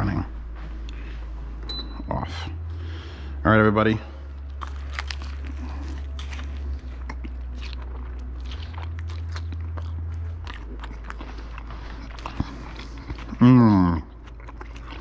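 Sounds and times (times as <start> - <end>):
low hum: 0.0 - 15.0
person chewing food: 4.3 - 15.0.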